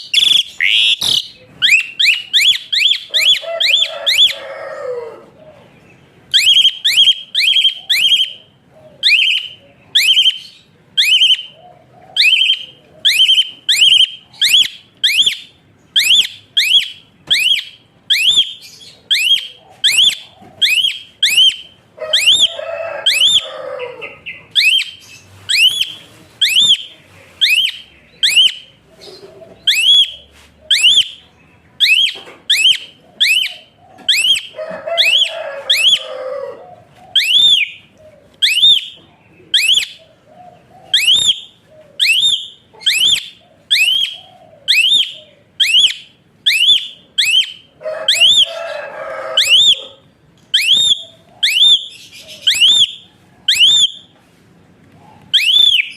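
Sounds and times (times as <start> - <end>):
harsh bird chattering: 0.0 - 4.4, 6.3 - 36.2, 36.8 - 54.1
bird whistle-like calls: 0.0 - 4.5, 6.3 - 11.6, 12.2 - 36.2, 37.1 - 39.0, 39.6 - 40.0, 40.8 - 54.1, 55.3 - 55.9.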